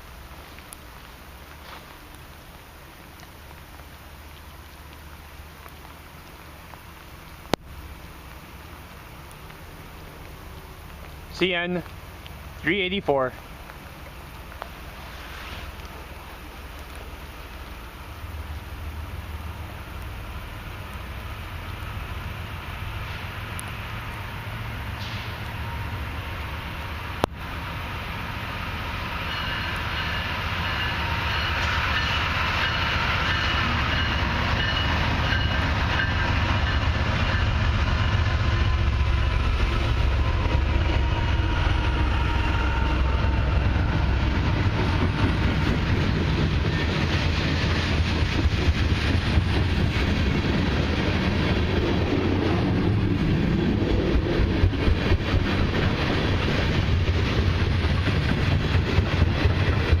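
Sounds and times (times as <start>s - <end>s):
diesel locomotives rumbling: 7.8s - 60.0s
train wheels clicking on rails: 22.9s - 26.5s, 28.0s - 60.0s.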